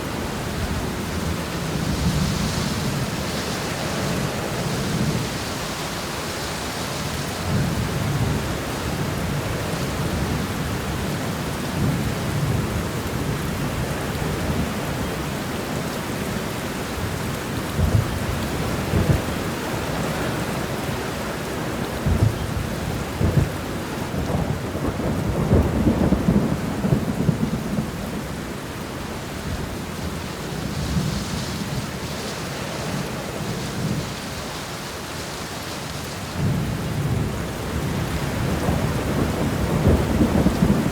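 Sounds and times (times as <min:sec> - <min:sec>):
rain falling: 0:00.0 - 0:40.9.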